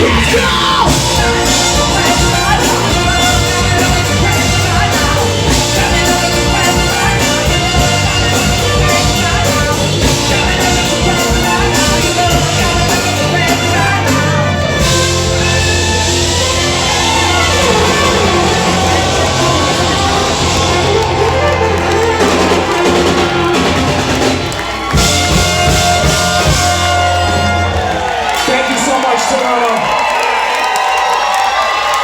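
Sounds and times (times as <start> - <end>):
sustained bass and guitar notes: 0.0 - 28.2
drums and cymbals: 0.0 - 28.9
live rock band playing: 0.0 - 29.4.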